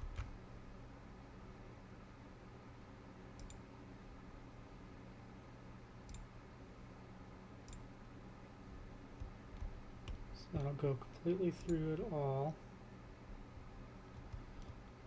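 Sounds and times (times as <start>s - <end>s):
quiet steady hum: 0.0s - 15.0s
computer mouse clicks: 3.4s - 3.6s, 6.1s - 6.3s, 7.7s - 7.9s, 9.2s - 10.8s, 14.1s - 14.8s.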